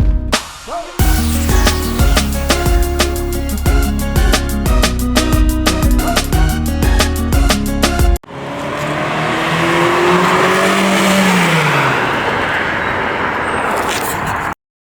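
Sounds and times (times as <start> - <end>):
car passing by: 8.3 - 14.6.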